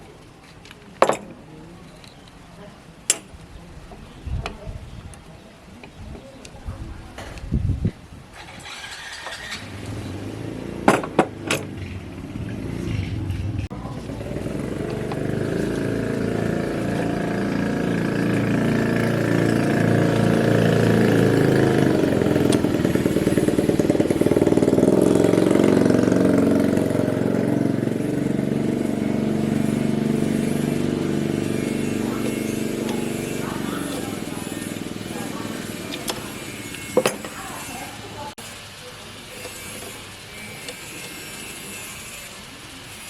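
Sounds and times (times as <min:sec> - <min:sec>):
small motor running: 0:13.9 - 0:43.0.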